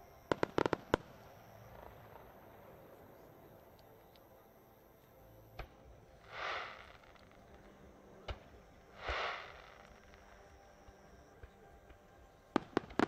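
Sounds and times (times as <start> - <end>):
firework hissing: 6.2 - 7.4, 8.8 - 10.7
distant firework pops: 8.3 - 10.2.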